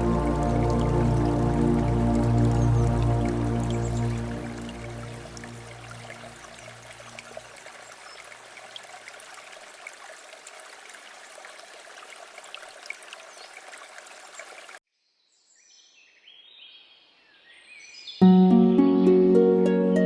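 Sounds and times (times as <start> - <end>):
low background music tone: 0.0 - 6.5, 18.2 - 20.0
flowing stream: 0.0 - 14.8
small water splashes: 0.0 - 14.8.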